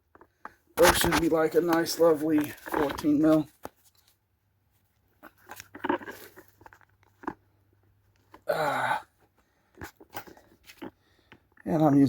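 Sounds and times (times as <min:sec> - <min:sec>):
person grunting: 0:08.4 - 0:09.1.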